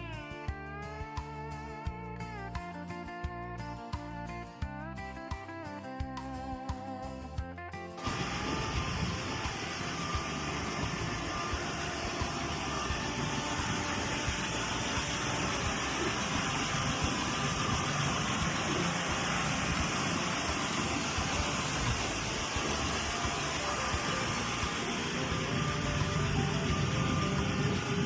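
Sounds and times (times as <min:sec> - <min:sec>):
car engine running: 0:08.0 - 0:28.0.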